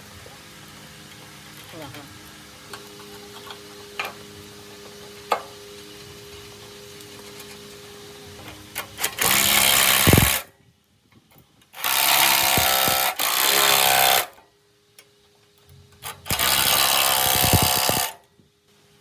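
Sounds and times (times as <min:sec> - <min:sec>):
workshop machine running: 0:01.7 - 0:10.5, 0:16.0 - 0:18.2.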